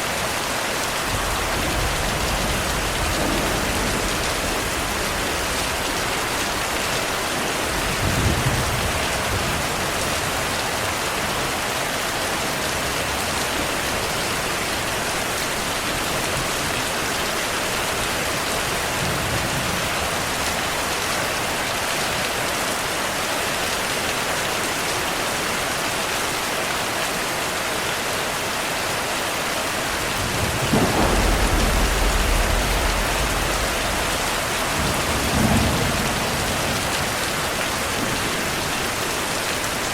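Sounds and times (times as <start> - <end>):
heavy rain hissing: 0.0 - 22.0, 26.8 - 39.9
thunder rumbling: 1.0 - 10.0, 29.9 - 39.0.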